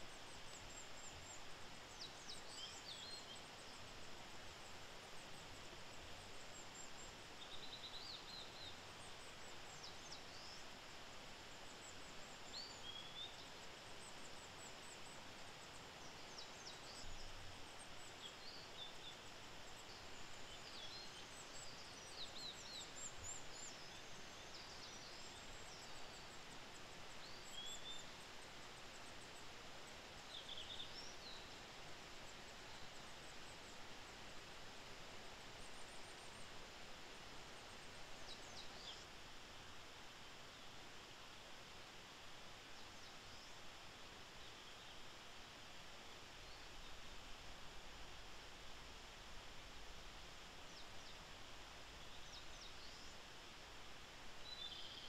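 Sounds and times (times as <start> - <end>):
small birds chirping: 0.0 - 40.8
steady low hiss: 0.0 - 55.0.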